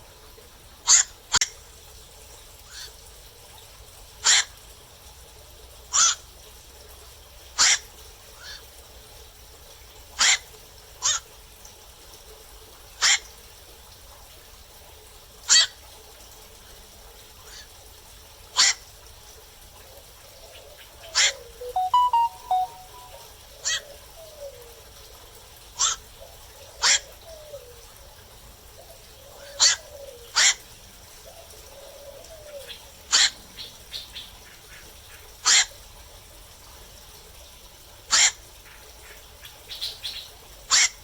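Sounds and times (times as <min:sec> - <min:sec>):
heron calling: 0:21.1 - 0:23.8.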